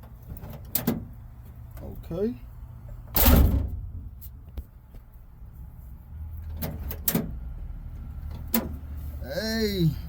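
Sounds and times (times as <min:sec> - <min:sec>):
car door slamming: 0:03.1 - 0:04.0.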